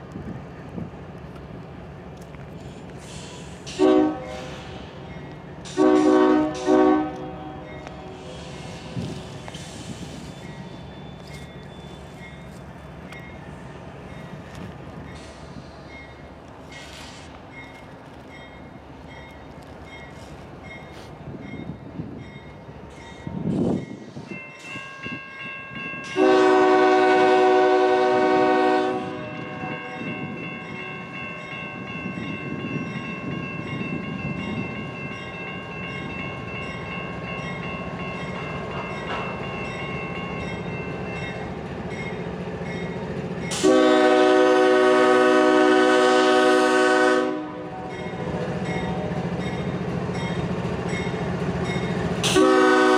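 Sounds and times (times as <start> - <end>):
rumble of passing train: 0.0 - 52.9
locomotive air horn blasts: 3.7 - 4.7, 5.7 - 8.8, 26.2 - 30.1, 43.6 - 48.0, 52.2 - 52.9.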